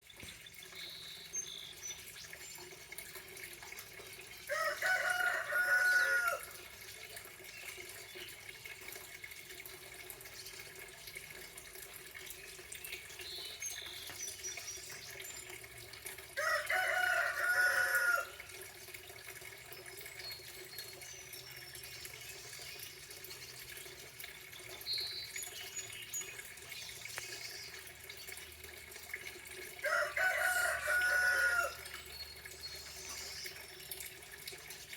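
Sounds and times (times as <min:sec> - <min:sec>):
small birds chirping: 0:00.0 - 0:02.8, 0:12.3 - 0:15.6, 0:19.7 - 0:28.4, 0:31.8 - 0:34.1
rooster crowing: 0:04.5 - 0:06.6, 0:16.4 - 0:18.4, 0:29.8 - 0:31.8.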